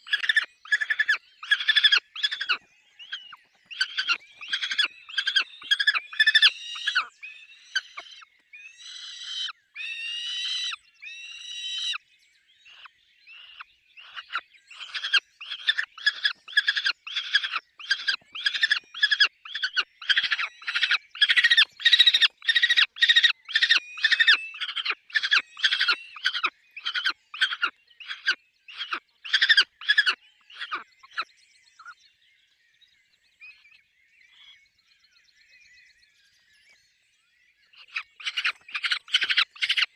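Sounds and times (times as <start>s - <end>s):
falcons calling harshly: 0.1s - 2.6s, 3.2s - 7.1s, 14.8s - 30.8s, 37.9s - 39.9s.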